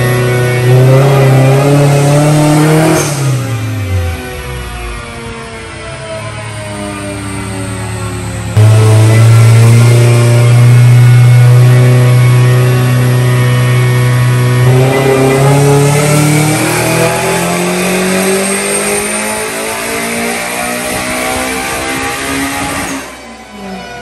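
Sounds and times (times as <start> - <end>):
car engine dyno pull: 0.0 - 24.0.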